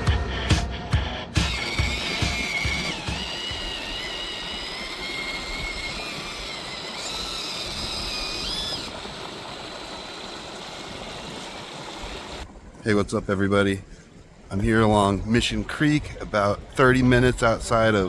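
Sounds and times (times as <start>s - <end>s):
small electric motor whining: 1.4s - 12.5s
creek rushing: 1.4s - 18.0s.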